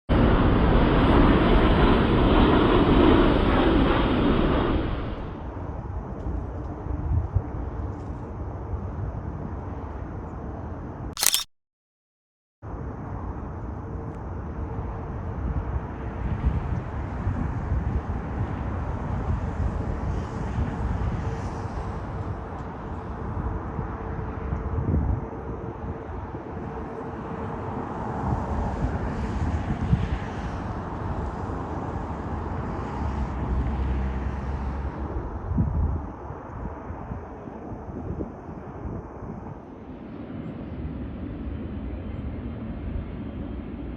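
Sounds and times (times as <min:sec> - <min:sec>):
jet airliner engine noise: 0:00.1 - 0:09.7, 0:12.8 - 0:43.9
loud click: 0:11.2 - 0:11.5.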